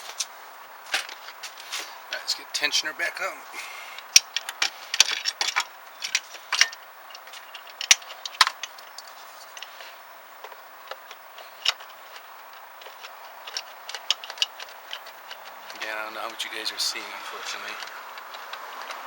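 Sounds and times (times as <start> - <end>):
hand tools clicking on metal: 4.0 - 19.0.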